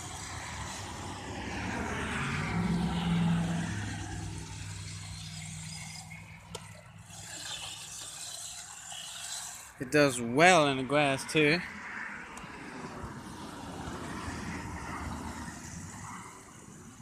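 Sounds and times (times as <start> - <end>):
electric motor whine: 0.0 - 9.8.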